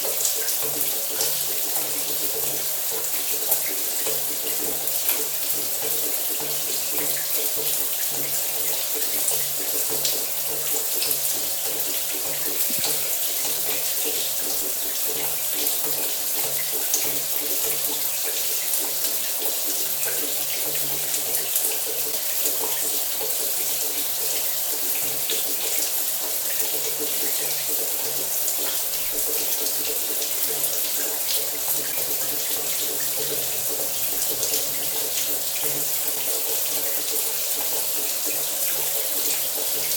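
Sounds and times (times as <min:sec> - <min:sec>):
shower water spraying: 0:11.8 - 0:15.1, 0:28.2 - 0:37.7.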